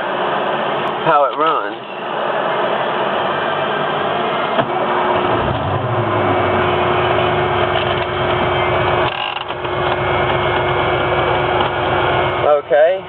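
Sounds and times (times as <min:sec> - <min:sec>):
air conditioner hum: 0:00.0 - 0:13.0
pickup truck engine idling: 0:04.2 - 0:13.0.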